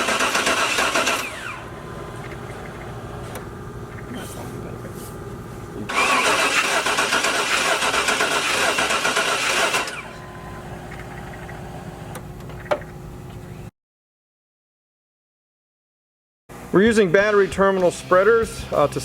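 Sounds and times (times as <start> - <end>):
engine cranking without firing: 0.0 - 4.2, 5.9 - 12.7.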